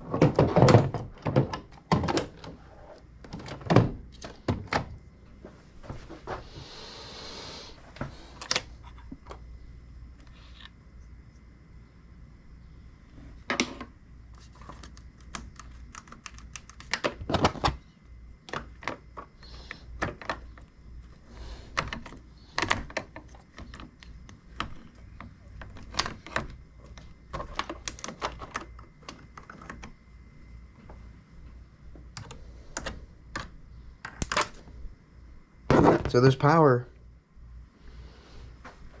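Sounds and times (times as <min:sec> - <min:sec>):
small plastic parts clicking: 0:14.4 - 0:17.8, 0:21.7 - 0:30.0, 0:32.1 - 0:34.6.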